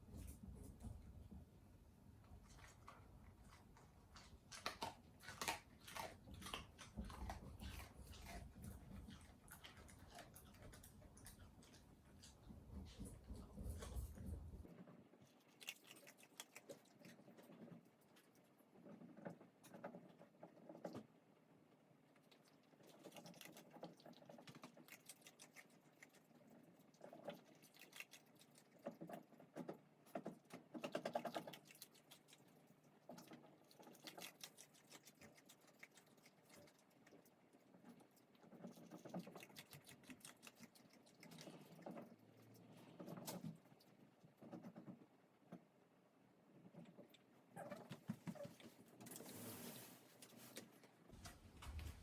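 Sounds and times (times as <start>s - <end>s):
pet crunching dry food: 2.2s - 14.6s, 15.2s - 19.2s, 22.2s - 44.5s.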